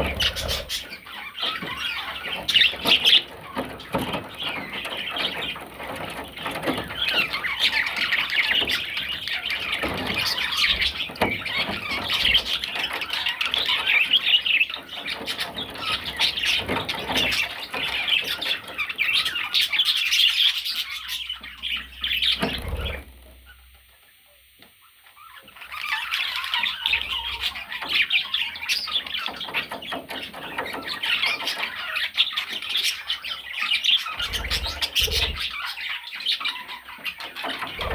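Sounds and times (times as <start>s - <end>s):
parrot chattering and squawking: 0.0s - 2.7s, 34.1s - 36.4s.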